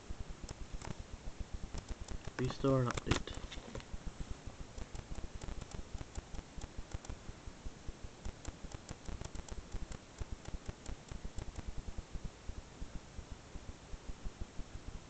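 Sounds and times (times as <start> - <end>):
rustling: 1.6 - 7.2
light clicks: 1.7 - 3.4, 4.8 - 7.2, 8.2 - 11.7.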